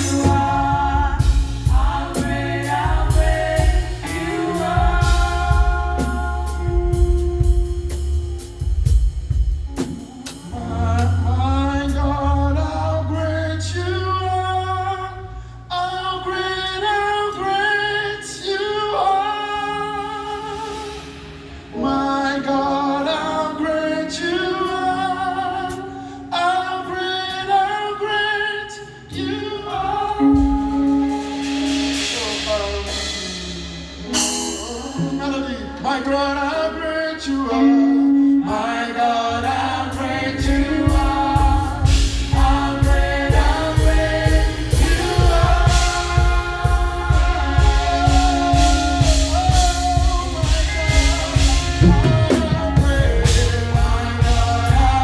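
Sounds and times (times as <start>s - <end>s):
drums: 0.0s - 12.2s, 19.6s - 22.6s, 29.1s - 36.0s, 39.4s - 55.0s
bass guitar: 0.0s - 23.1s, 28.8s - 55.0s
group of singers: 0.0s - 55.0s.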